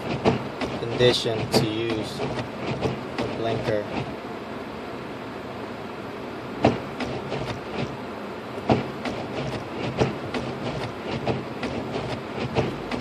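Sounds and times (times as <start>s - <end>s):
loud knocks: 0.0s - 4.1s, 6.6s - 7.9s, 8.7s - 13.0s
car road and cabin noise: 0.0s - 13.0s.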